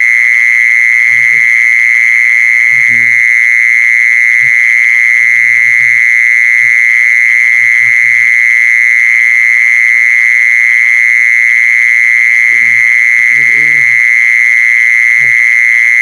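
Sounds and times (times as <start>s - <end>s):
insect high-pitched trill: 0.0s - 3.4s, 9.2s - 16.0s.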